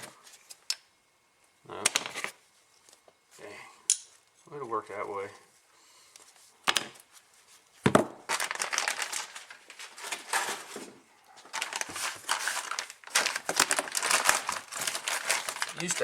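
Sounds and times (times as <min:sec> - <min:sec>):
packaging crinkling: 0:08.2 - 0:16.0.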